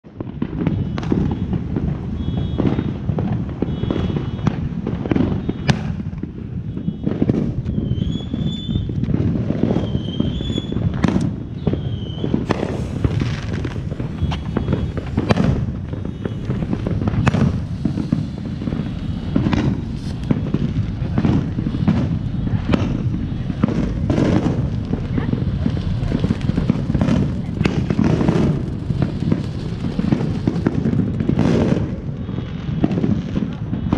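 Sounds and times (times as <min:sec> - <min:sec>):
fireworks bangs and pops: 0:00.0 - 0:33.9
fireworks low rumble: 0:00.0 - 0:33.9
firework whistles: 0:00.2 - 0:33.9
fountain spraying sparks: 0:12.3 - 0:33.8.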